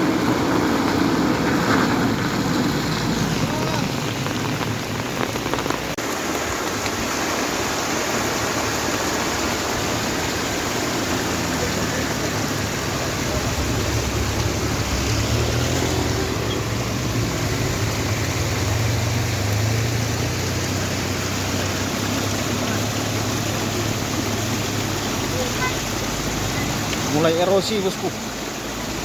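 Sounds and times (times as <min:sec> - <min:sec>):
steady rushing noise: 0:00.0 - 0:27.8
truck engine droning: 0:08.0 - 0:27.1.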